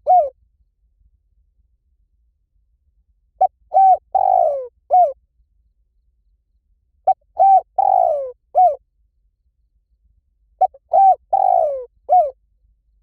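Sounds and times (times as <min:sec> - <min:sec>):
dove cooing: 0:00.0 - 0:00.3, 0:03.4 - 0:05.2, 0:07.1 - 0:08.8, 0:10.6 - 0:12.4.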